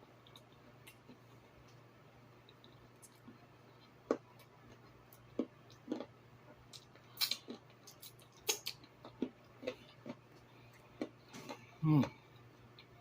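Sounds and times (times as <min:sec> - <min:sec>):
person chewing with lip smacks: 0:02.5 - 0:12.9.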